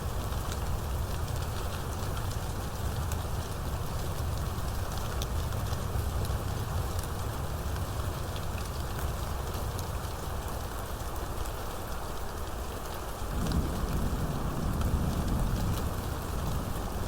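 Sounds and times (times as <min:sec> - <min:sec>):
steady rainfall: 0:00.0 - 0:17.0
low thunder rumble: 0:13.3 - 0:17.0.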